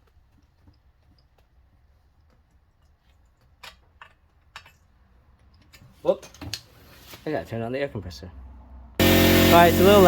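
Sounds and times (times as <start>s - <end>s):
low hum: 9.0s - 10.0s.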